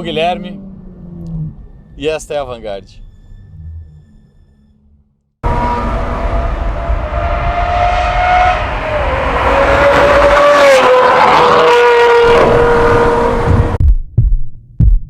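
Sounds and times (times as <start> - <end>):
loud car engine revving high: 5.4 - 13.8.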